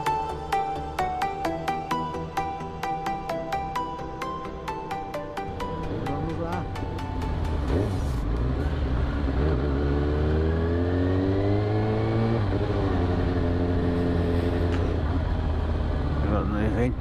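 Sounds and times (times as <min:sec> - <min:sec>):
motorcycle engine accelerating: 0:05.4 - 0:17.0.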